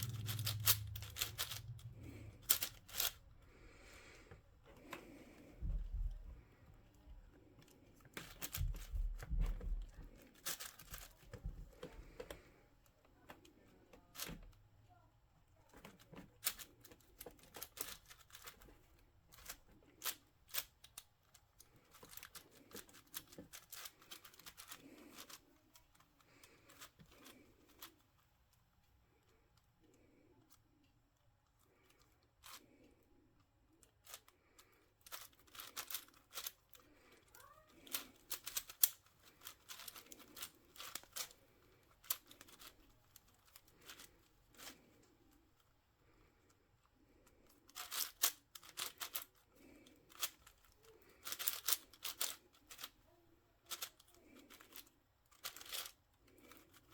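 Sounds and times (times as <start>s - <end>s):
plastic puzzle clicking: 0.0s - 3.2s, 10.4s - 12.4s, 15.7s - 28.0s, 33.9s - 37.2s, 37.8s - 44.8s, 47.4s - 49.4s, 50.1s - 53.0s, 53.7s - 56.9s.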